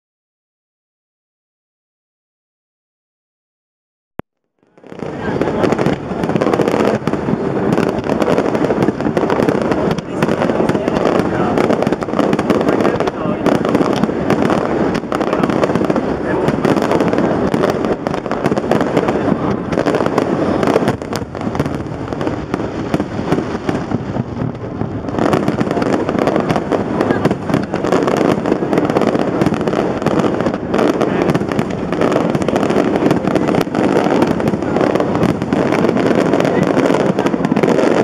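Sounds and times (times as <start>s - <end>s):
fireworks crackling and banging: 4.6s - 38.0s.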